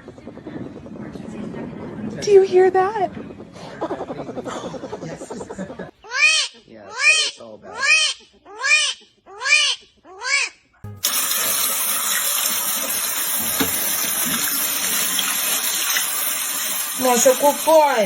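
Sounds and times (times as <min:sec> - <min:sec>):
tap water running: 0:10.9 - 0:18.0.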